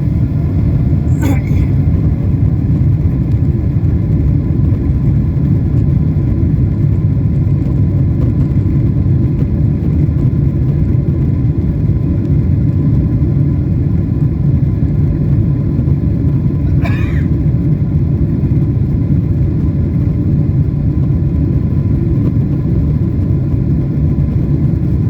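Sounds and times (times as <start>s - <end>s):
jet engines and airflow rumble: 0.0s - 25.0s.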